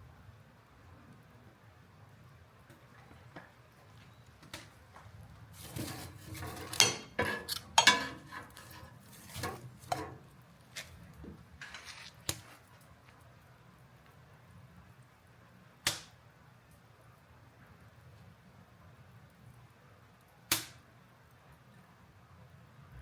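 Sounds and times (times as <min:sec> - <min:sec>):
small hard objects clattering: 0:05.6 - 0:12.8.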